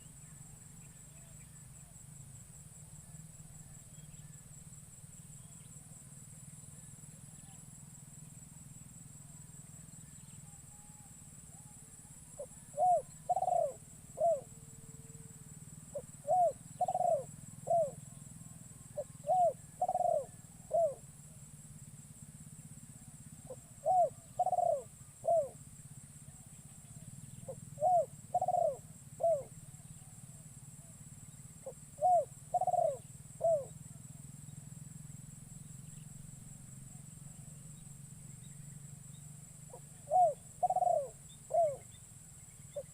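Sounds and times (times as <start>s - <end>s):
dove cooing: 10.4s - 14.6s, 15.9s - 18.2s, 18.9s - 21.1s, 23.4s - 25.6s, 26.9s - 30.1s, 31.6s - 33.8s, 39.7s - 41.9s.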